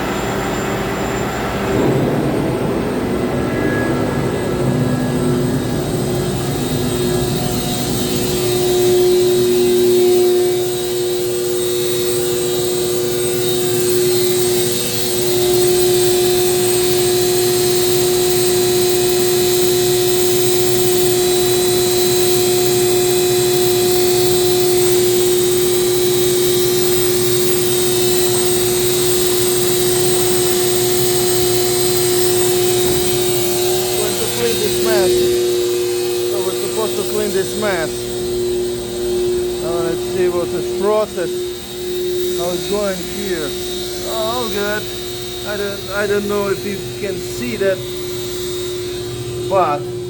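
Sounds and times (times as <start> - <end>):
vacuum pump whining and hissing: 0.0 - 50.0.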